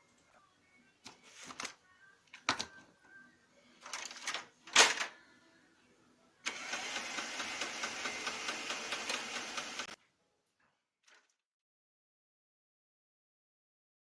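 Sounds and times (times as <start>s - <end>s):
printer mechanism ticking grind: 6.5s - 10.0s.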